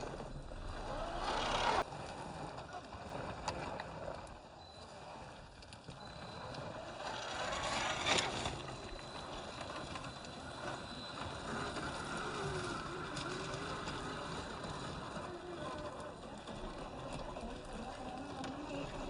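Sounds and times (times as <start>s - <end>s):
electric motor whirring: 0.0s - 1.8s.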